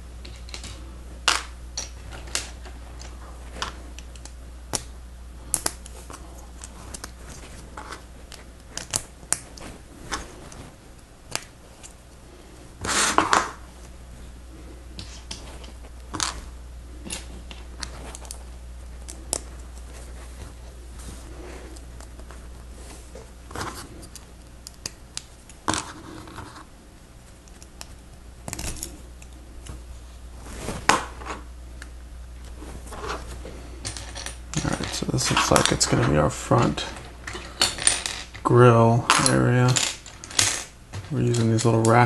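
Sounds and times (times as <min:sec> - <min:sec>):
steady low hum: 0:00.0 - 0:42.0
plastic pieces clicking and snapping: 0:06.6 - 0:09.6
rattle of plastic pieces: 0:33.8 - 0:38.5.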